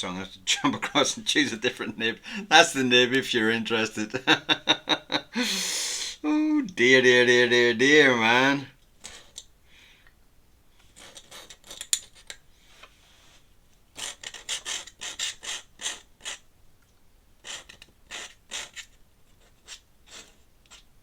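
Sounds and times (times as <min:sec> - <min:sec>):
pen nib scratching paper: 0:10.9 - 0:12.3, 0:14.0 - 0:16.4, 0:17.4 - 0:20.9.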